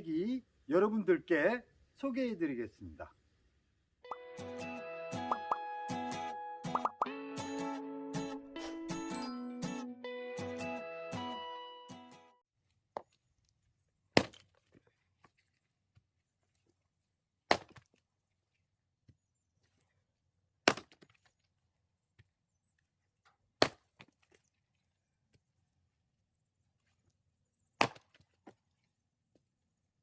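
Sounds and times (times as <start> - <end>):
axe chopping firewood: 14.1 - 14.8, 17.4 - 18.0, 20.6 - 21.3, 23.5 - 24.3, 27.8 - 28.6.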